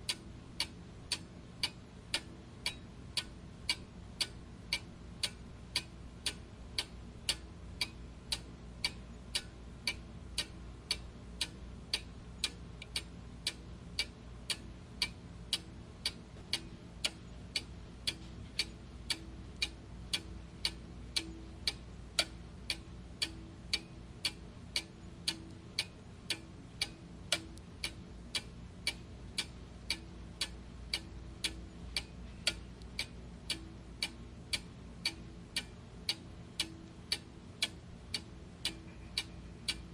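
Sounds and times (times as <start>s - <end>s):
clock ticking: 0.0s - 39.9s
faint low hum: 0.0s - 39.9s.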